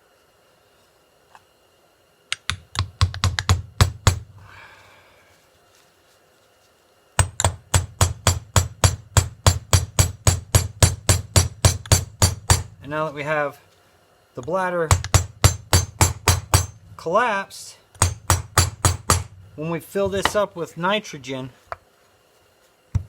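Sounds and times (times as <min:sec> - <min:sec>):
hammer tapping metal: 0:02.3 - 0:04.4, 0:07.2 - 0:12.8, 0:14.9 - 0:16.9, 0:18.0 - 0:20.4.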